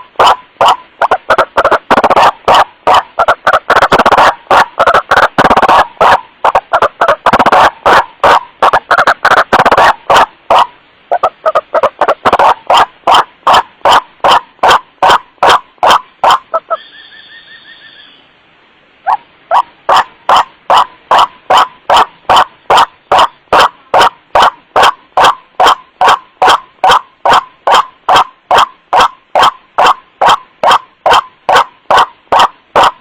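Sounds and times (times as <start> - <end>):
waterhen harsh calls: 0.0 - 18.3, 19.0 - 33.0
fainter higher bird notes: 16.5 - 18.4.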